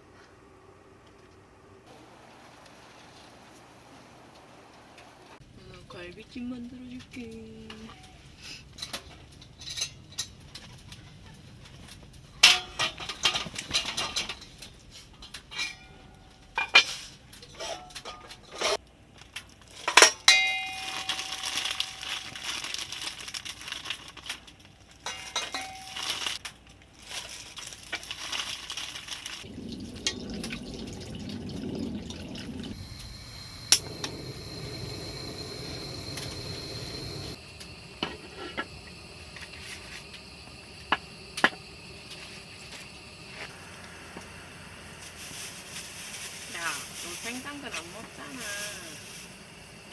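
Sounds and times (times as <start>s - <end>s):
dishes and utensils clinking: 12.4s - 18.8s, 25.0s - 26.4s
liquid rushing: 29.4s - 37.4s.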